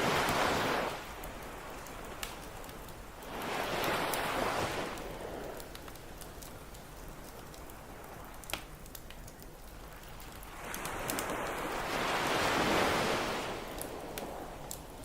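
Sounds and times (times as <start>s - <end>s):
ocean wave surging onto beach: 0.0s - 2.6s, 3.2s - 5.8s, 10.4s - 14.7s
campfire crackling and popping: 0.0s - 15.0s.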